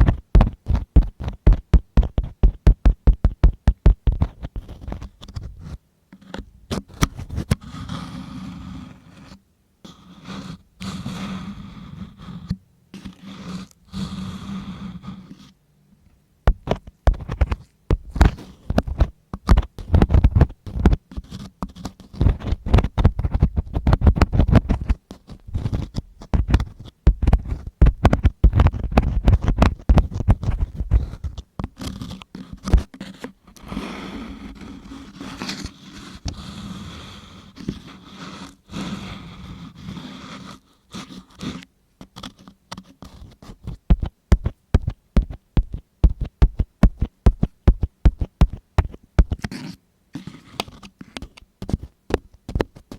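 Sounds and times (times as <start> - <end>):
rapid scratching with clicks: 0.0 - 5.8, 16.5 - 39.1, 39.8 - 52.9
tool rubbing against microphone: 0.0 - 15.6, 16.5 - 52.9.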